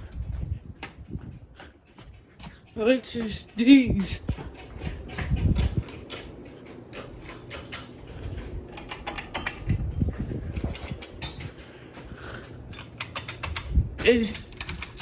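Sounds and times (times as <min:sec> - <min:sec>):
ceiling fans humming: 0:00.0 - 0:15.0.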